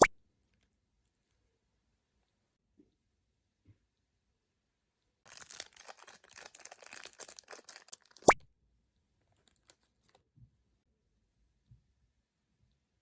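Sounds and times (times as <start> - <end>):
plastic packaging crinkling and tearing: 5.3 - 8.4, 9.4 - 10.2.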